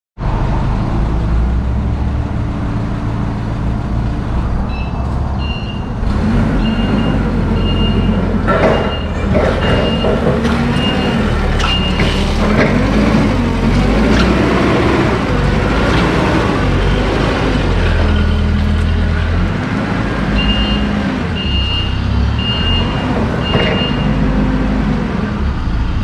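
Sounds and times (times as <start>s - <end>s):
reversing alarm beeping: 4.7s - 6.0s, 6.6s - 12.2s, 20.3s - 24.2s
vehicle engine running: 5.9s - 25.1s
clatter: 8.4s - 14.6s.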